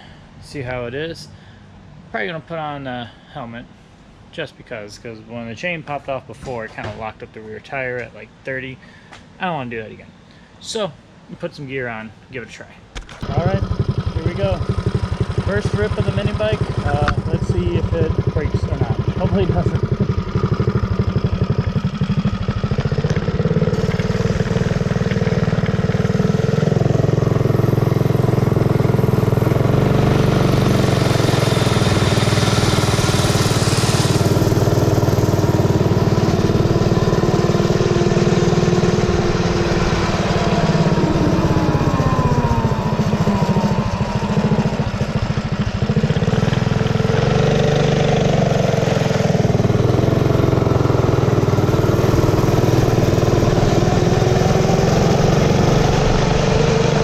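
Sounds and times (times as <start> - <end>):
mini bike engine revving: 13.2 - 57.0.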